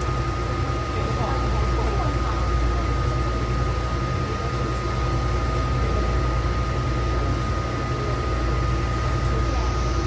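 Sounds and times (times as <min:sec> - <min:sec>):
thin steady whine: 0:00.0 - 0:10.0
train low rumble: 0:00.0 - 0:10.0.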